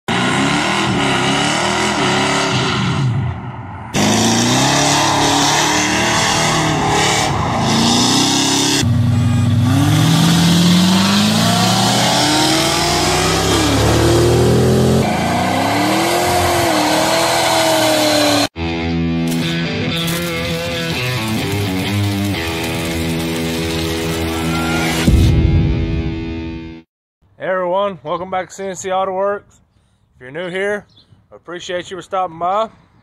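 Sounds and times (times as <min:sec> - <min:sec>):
car engines revving and accelerating: 0:00.1 - 0:18.5.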